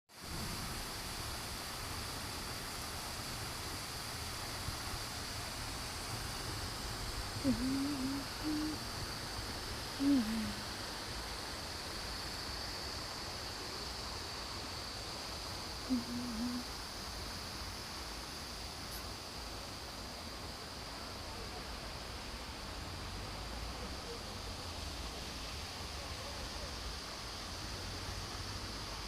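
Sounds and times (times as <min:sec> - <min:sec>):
background hiss: 0:00.1 - 0:29.0
low hooting calls: 0:07.4 - 0:08.8.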